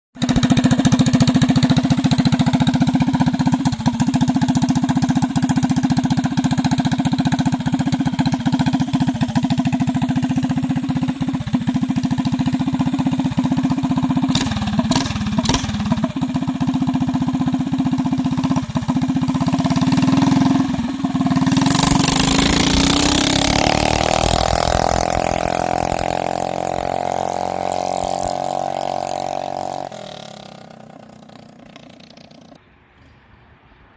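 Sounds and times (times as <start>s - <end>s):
mini bike engine running: 0.2s - 32.6s
rushing noise: 20.6s - 31.6s.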